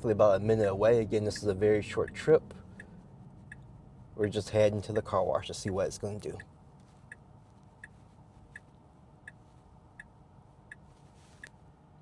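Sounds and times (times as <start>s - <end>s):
turn signal ticking: 0.0s - 5.0s, 5.6s - 11.6s.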